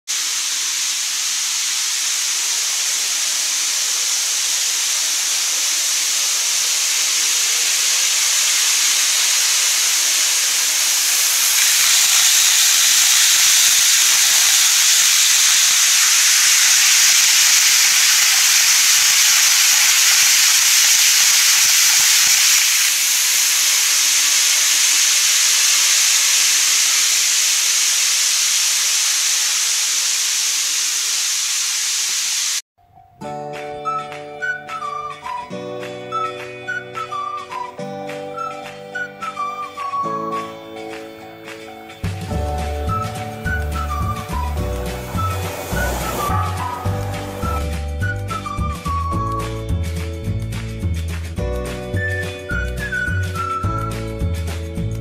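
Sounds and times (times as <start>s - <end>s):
model train rolling hiss: 0.1s - 32.6s, 39.3s - 49.0s.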